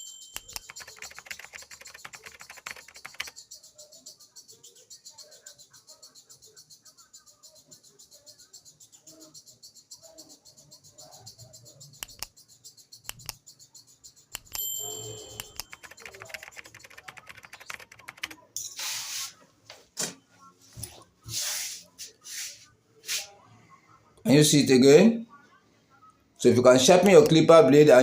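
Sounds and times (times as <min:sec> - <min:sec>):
metallic ring: 0:14.6 - 0:15.6.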